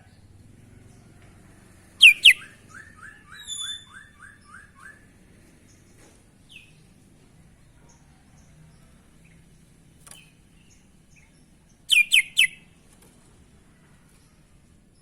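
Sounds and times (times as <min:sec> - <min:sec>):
bird singing: 0:02.0 - 0:06.9, 0:07.9 - 0:12.7.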